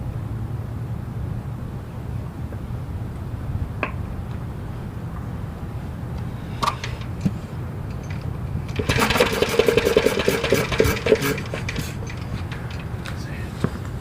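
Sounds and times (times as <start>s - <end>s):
single-cylinder engine starting: 6.6s - 13.0s.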